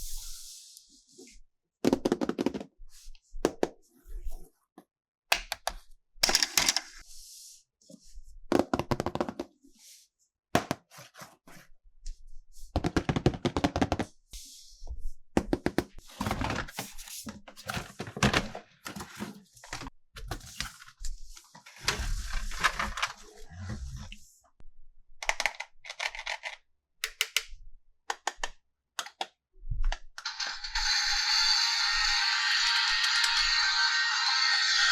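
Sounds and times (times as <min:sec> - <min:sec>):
plastic toys clicking and knocking: 0:05.3 - 0:07.0, 0:25.2 - 0:27.5, 0:28.1 - 0:29.4.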